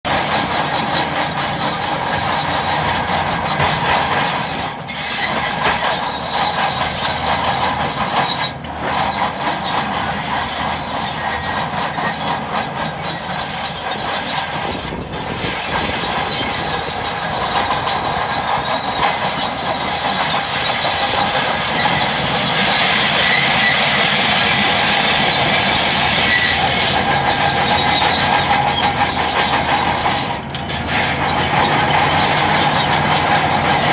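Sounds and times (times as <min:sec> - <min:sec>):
bulldozer engine rumble: 0:00.0 - 0:33.9
steel tracks squealing and clanking: 0:00.1 - 0:33.9.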